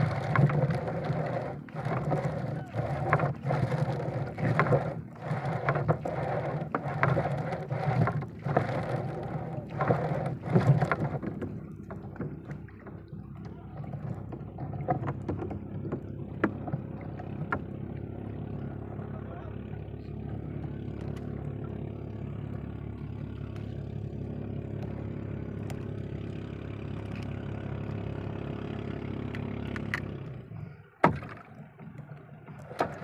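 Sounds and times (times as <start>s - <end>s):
rough splashing and knocking: 0.0s - 18.2s, 31.0s - 33.0s
boat engine running: 0.0s - 33.0s.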